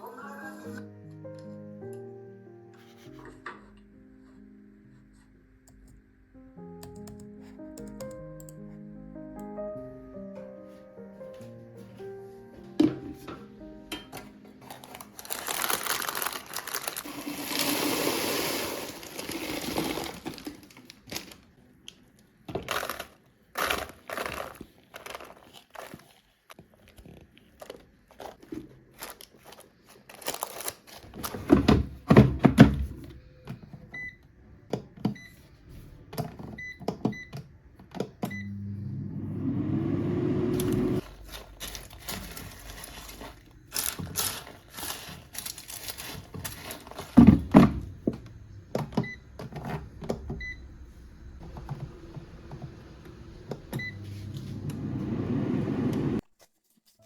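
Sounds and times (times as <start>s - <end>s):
household handling knocks and rustling: 31.0s - 33.9s, 41.0s - 50.4s
appliance motor hum: 38.3s - 41.0s, 47.9s - 56.2s.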